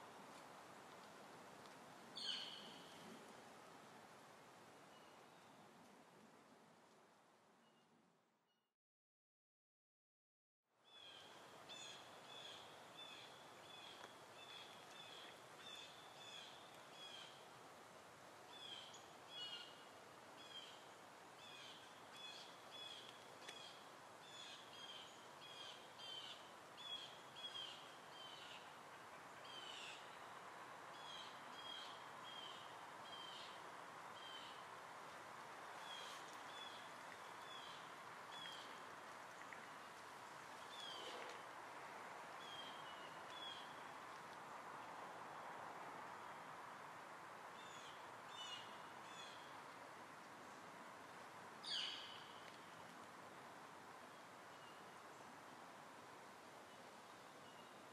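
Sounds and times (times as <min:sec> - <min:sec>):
soft steady hiss: 0:00.0 - 0:08.6, 0:10.7 - 0:57.9
faint bird chirping: 0:40.6 - 0:41.4.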